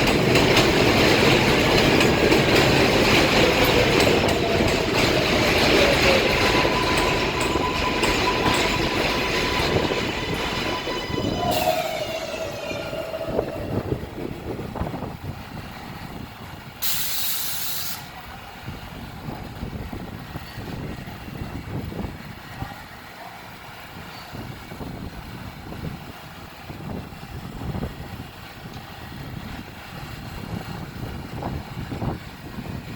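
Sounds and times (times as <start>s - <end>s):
low rumble of idling train: 0.0s - 32.9s
train whine and squeal: 0.0s - 32.9s
air brakes hissing: 16.8s - 18.1s.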